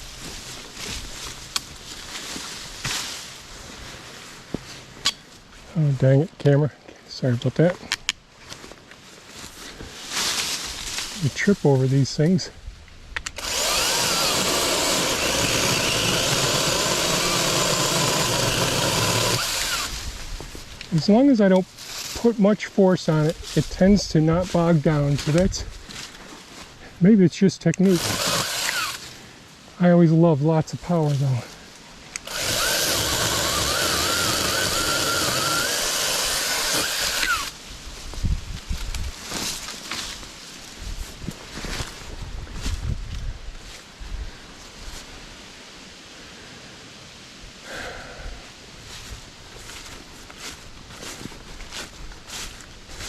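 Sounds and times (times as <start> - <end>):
mini chainsaw cutting branch: 13.2 - 20.1, 27.8 - 29.2, 32.2 - 37.6
motor spinning down: 13.4 - 20.0, 27.8 - 29.1, 32.2 - 37.6.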